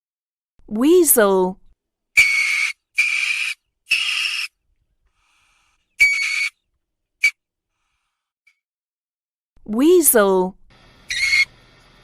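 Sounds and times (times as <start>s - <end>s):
weasel squealing: 2.2s - 4.5s, 6.0s - 6.6s, 11.1s - 11.5s.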